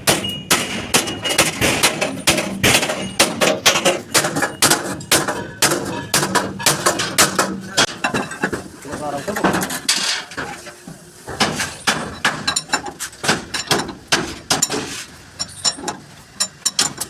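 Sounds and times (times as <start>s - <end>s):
hammer striking sheet metal: 0.0s - 8.0s.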